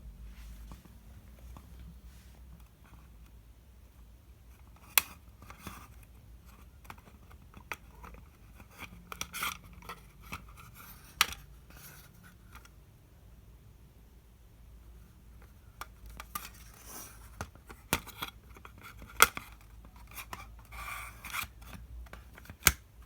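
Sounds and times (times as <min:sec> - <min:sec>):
rustling and scraping: 0:00.2 - 0:03.1.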